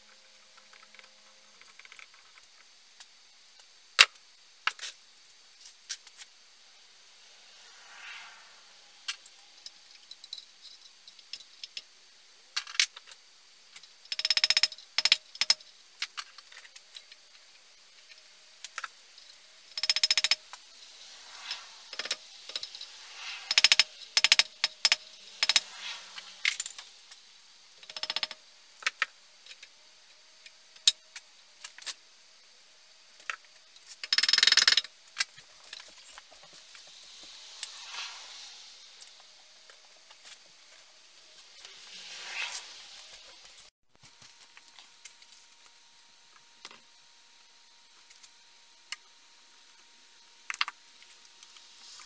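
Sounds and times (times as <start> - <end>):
rasping passes: 7.0 - 9.6, 20.5 - 27.1, 36.8 - 39.1.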